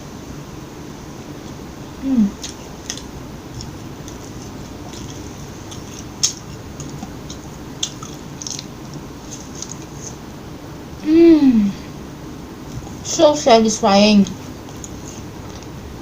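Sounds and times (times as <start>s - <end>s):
chewing with crisp crunches: 2.4s - 10.2s, 14.2s - 15.8s
steady chewing: 2.4s - 10.2s, 14.2s - 16.0s
sharp mouth clicks: 4.9s - 9.0s.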